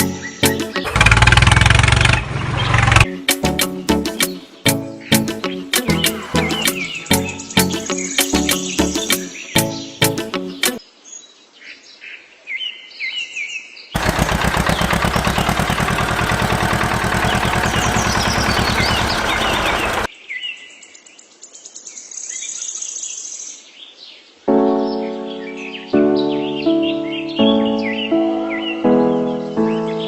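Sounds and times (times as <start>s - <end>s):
birds chirping: 0.0s - 1.2s, 1.8s - 10.8s, 14.0s - 21.0s, 24.1s - 30.0s
loud very fast rattle: 0.8s - 3.0s, 14.0s - 20.1s.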